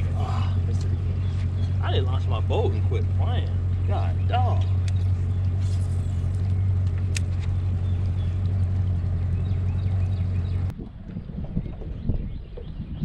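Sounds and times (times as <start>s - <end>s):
boat motor humming: 0.0s - 12.8s.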